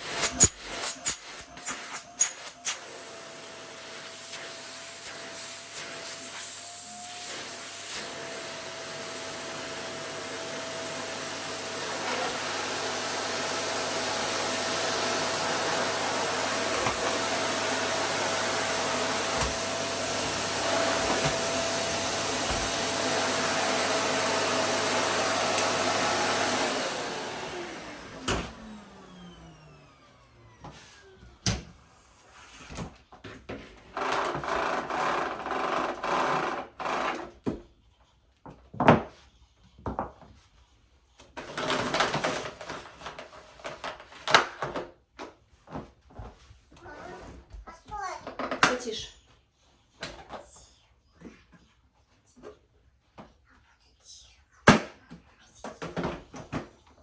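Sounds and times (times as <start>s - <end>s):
vacuum cleaner motor whine: 0.0s - 32.2s, 33.9s - 37.3s, 41.4s - 43.2s.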